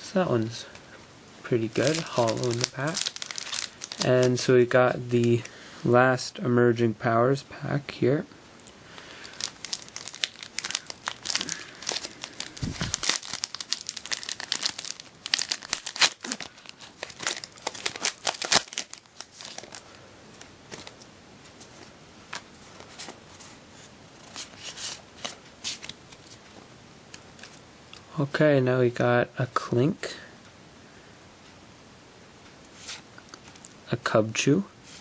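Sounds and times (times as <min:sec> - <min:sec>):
foil wrapper crinkling and tearing: 0:01.5 - 0:04.5, 0:09.0 - 0:20.0.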